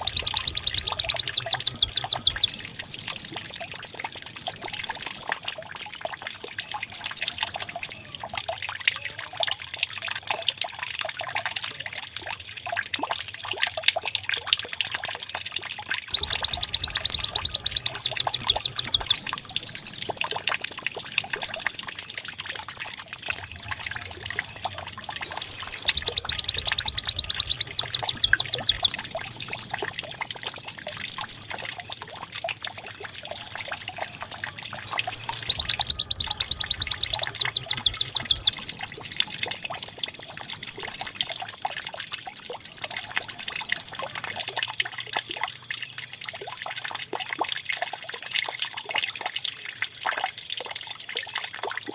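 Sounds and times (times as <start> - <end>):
faint trickling: 0.0 - 5.4, 16.1 - 41.3
bird singing trills: 0.0 - 8.1, 16.1 - 44.1.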